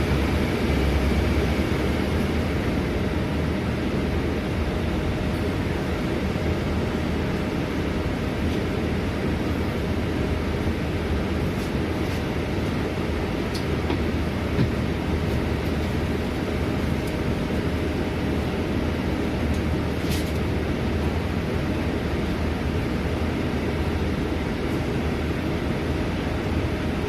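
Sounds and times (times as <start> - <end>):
bus engine drone: 0.0 - 27.0
road noise: 0.0 - 27.0.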